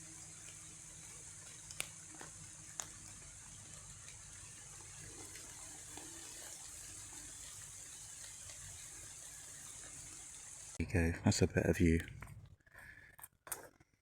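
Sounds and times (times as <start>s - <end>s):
light rain on leaves: 0.0s - 10.8s.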